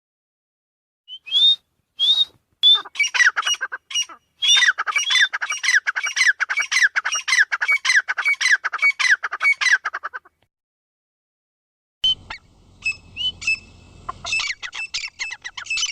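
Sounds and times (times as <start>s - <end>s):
francolin calling: 2.6s - 9.8s, 12.0s - 15.9s.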